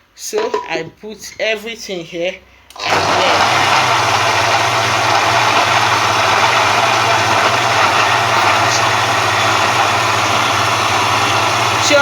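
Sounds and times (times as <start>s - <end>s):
electric blender running: 2.7s - 12.0s.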